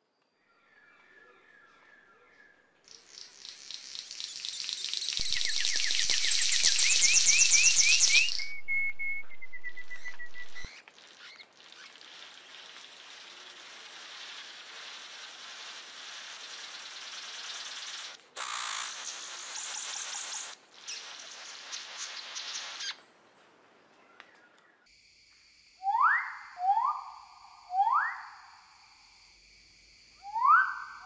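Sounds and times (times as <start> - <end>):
birds chirping: 4.2 - 12.8.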